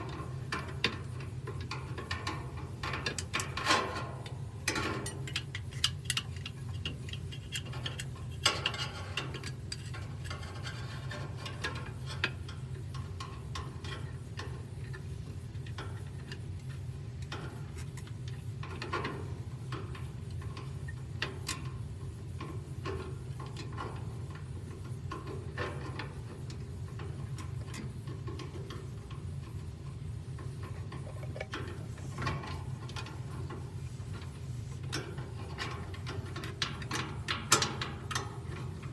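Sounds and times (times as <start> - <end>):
steady low hum: 12.1 - 38.9.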